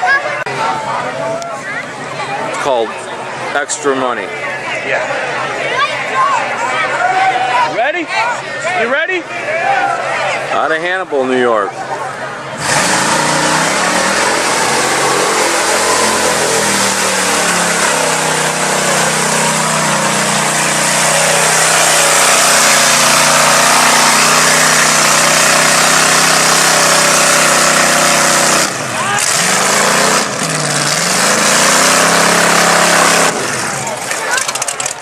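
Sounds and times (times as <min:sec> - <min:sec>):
truck engine at high revs: 0:12.3 - 0:35.0
mud spraying: 0:12.6 - 0:28.6.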